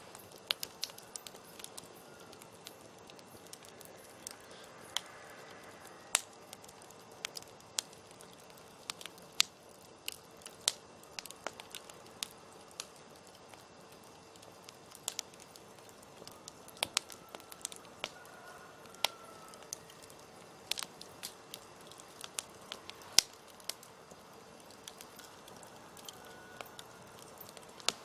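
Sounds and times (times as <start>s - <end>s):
campfire crackling: 0.0s - 28.0s.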